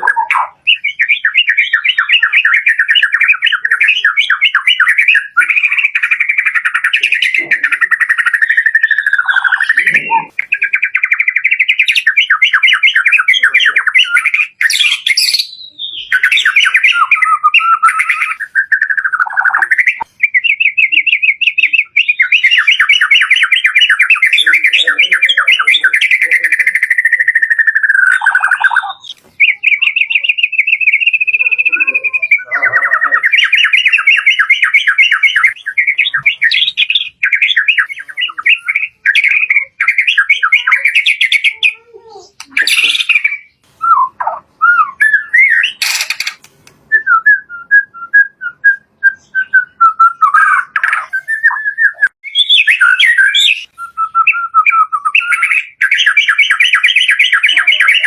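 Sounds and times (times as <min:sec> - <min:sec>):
bird singing trills: 0:00.0 - 0:58.0
sharp click: 0:45.8 - 0:46.8.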